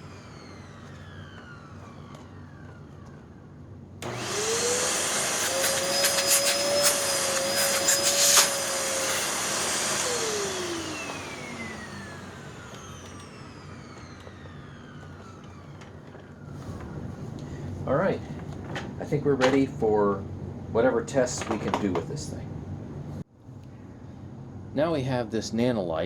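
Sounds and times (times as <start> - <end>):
vacuum cleaner motor whine: 0.0 - 19.6.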